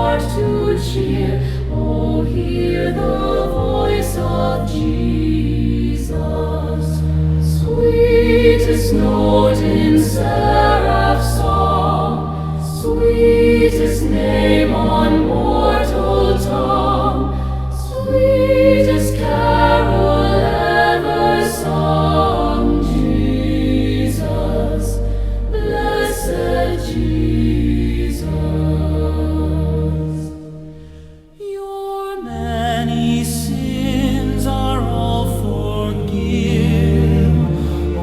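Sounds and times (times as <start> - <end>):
low bass chords: 0.0 - 30.3
choir singing a hymn: 0.0 - 38.0.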